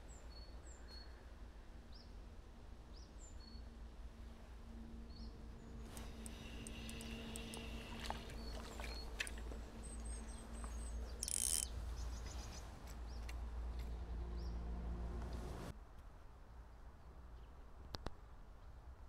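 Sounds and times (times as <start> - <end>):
small birds chirping: 5.1 - 14.6.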